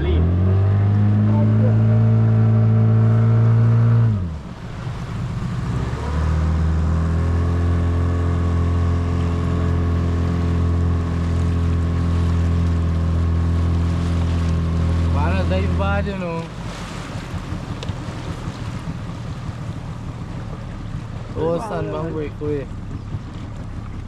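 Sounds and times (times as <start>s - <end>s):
motorboat engine: 0.0s - 24.0s.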